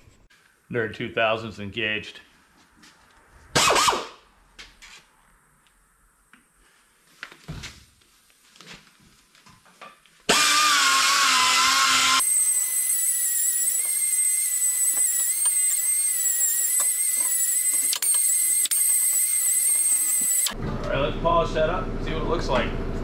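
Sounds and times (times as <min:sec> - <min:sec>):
air polisher whining: 0:10.3 - 0:20.6.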